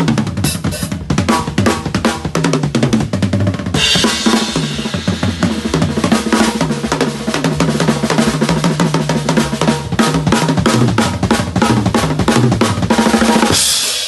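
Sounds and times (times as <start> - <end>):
fast drum kit playing: 0.0 - 14.0
cymbal crash: 0.4 - 1.1, 3.8 - 6.5.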